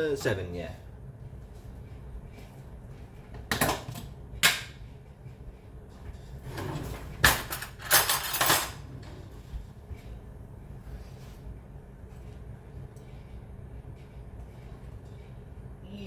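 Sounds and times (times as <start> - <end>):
low steady hum: 0.0 - 16.0
kitchen items knocking and clattering: 3.3 - 4.8, 6.0 - 9.0.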